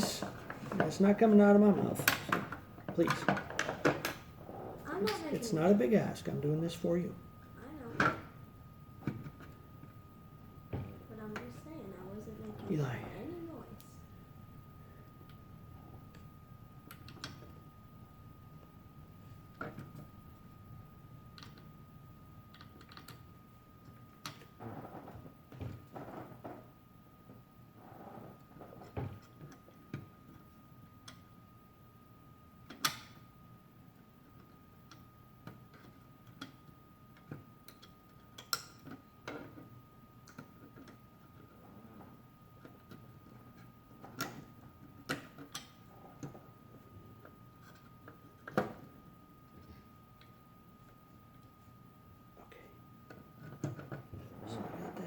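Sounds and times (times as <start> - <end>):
small parts clicking and tapping: 22.5 - 24.5, 34.3 - 41.6.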